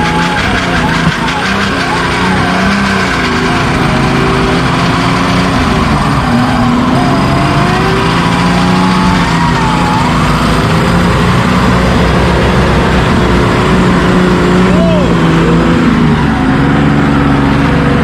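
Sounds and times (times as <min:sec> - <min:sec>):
off-road engine running hard: 0:00.0 - 0:18.0.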